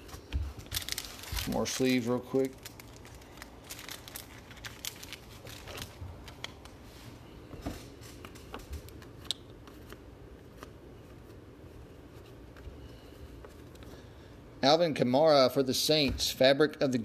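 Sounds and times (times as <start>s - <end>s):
plastic card sleeves crinkling: 0.0s - 6.9s.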